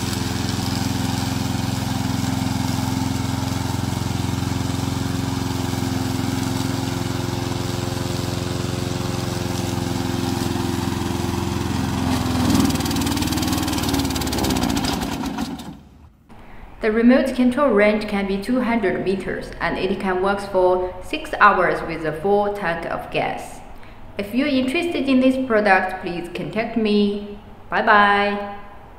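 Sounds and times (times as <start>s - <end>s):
lawn mower engine running: 0.0s - 16.2s.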